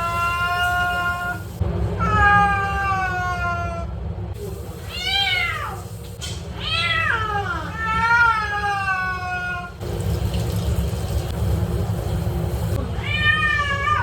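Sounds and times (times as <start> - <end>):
cat meowing: 4.8 - 5.8, 6.6 - 9.8, 13.0 - 14.0.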